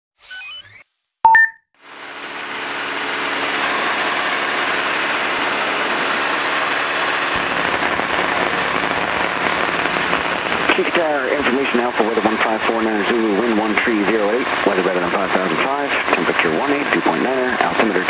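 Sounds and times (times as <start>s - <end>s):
short electronic beep: 0.2s - 1.7s
propeller plane cabin noise: 1.9s - 13.6s.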